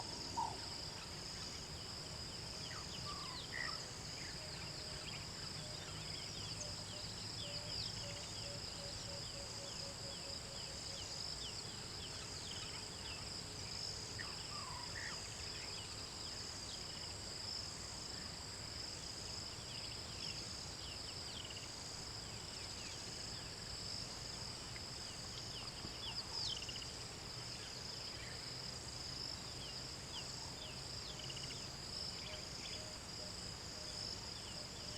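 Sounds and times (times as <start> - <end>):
high-pitched insect chorus: 0.0 - 34.9.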